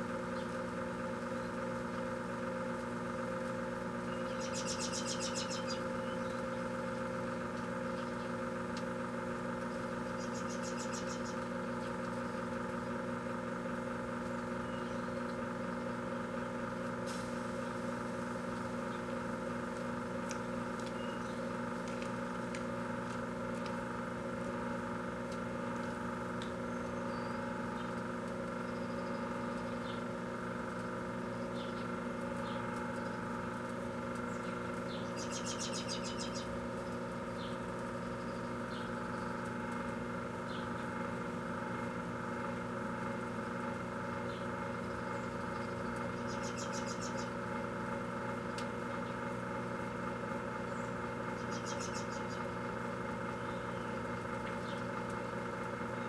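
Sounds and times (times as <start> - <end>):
microwave oven humming: 0.0 - 56.0.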